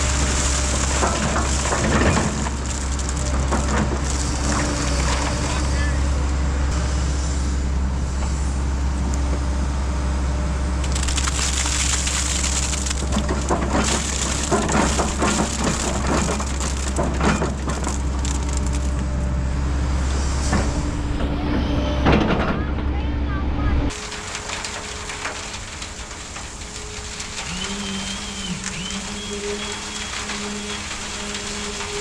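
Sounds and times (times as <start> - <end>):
cracking and crunching: 0.0 - 5.7, 10.7 - 19.3, 23.9 - 32.0
diesel engine running: 0.0 - 32.0.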